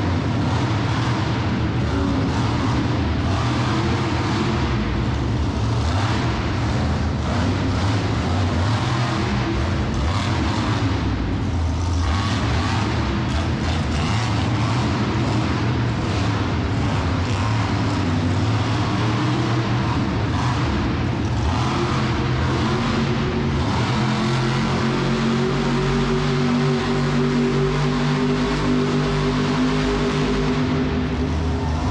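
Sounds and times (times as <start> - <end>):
monster truck engine running: 0.0 - 31.9.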